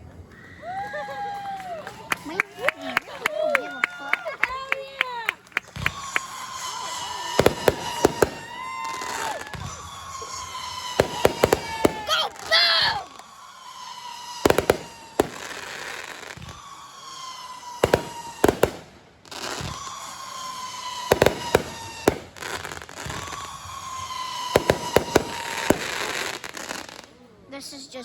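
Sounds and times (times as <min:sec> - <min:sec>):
firework bangs: 0:04.4 - 0:27.2
firework whistles falling in pitch: 0:05.6 - 0:27.1.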